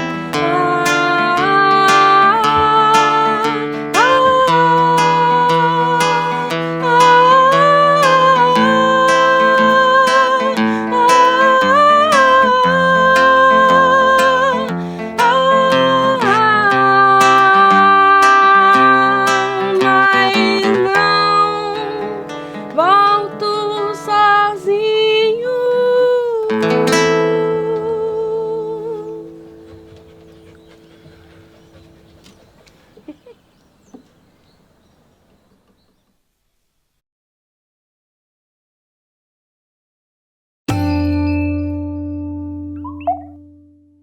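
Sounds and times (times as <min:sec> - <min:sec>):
person singing wordless notes: 0:00.0 - 0:32.0
acoustic guitar plucking: 0:00.0 - 0:32.6, 0:40.7 - 0:44.0.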